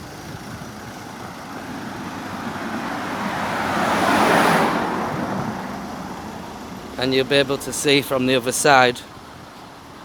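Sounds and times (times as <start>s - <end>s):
car passing: 1.4s - 9.1s.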